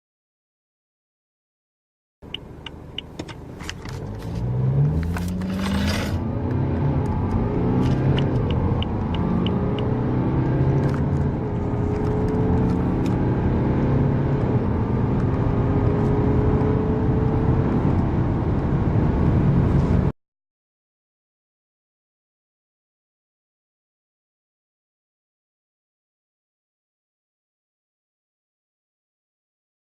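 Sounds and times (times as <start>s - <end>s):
car engine accelerating: 2.2s - 20.1s.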